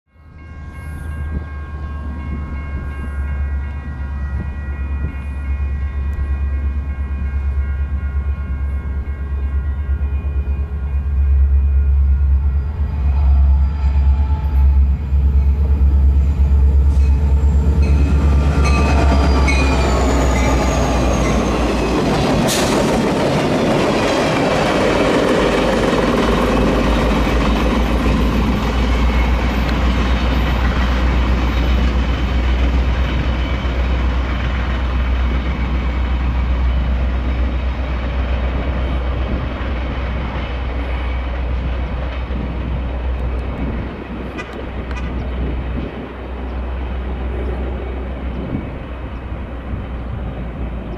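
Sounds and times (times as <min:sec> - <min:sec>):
diesel locomotive engine passing: 0:00.1 - 0:50.9
train wheels clicking over rails: 0:16.7 - 0:35.8.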